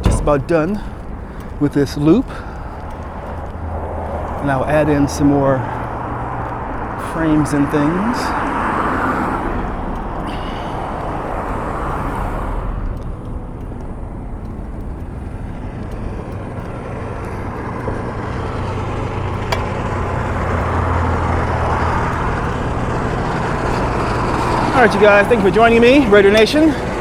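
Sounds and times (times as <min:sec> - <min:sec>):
cars passing: 0:00.0 - 0:27.0.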